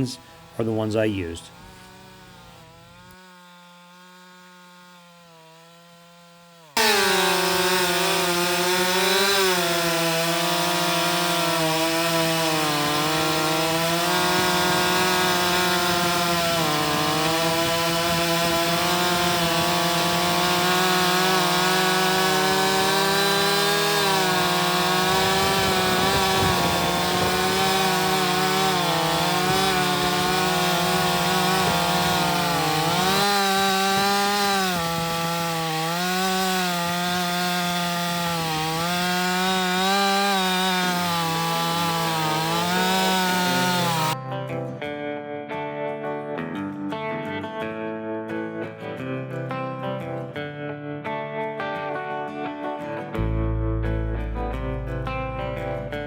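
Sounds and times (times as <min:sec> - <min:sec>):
chainsaw cutting wood: 0:00.0 - 0:44.2.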